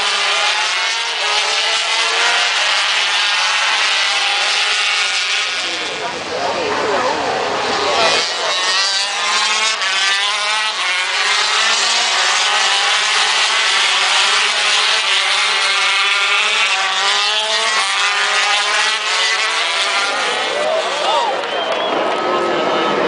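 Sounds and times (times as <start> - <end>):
racing motorcycle engines revving: 0.0 - 23.0.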